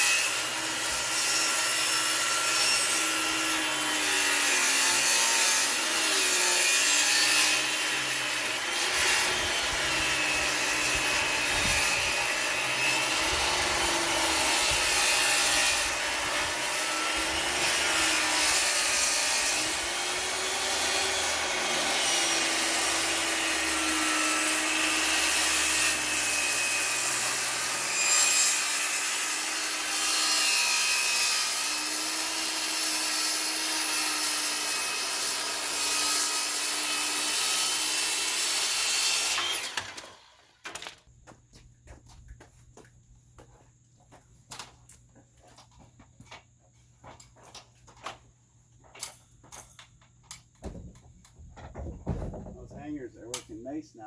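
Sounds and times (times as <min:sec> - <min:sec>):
power tool cutting wood: 0:00.0 - 0:41.0.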